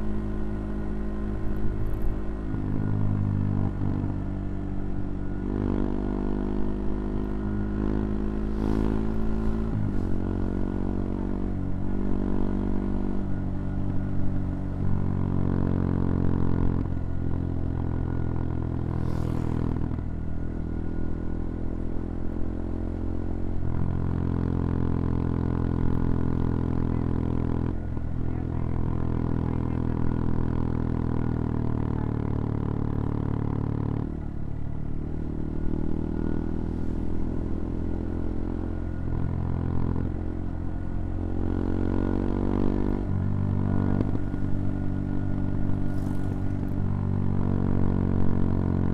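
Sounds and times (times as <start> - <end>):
motorcycle engine shifting gears: 35.2 - 48.9.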